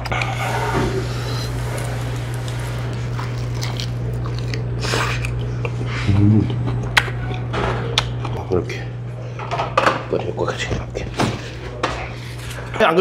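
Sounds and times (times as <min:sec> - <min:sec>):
low hum: 0:00.0 - 0:09.4
man chewing food: 0:01.0 - 0:08.4.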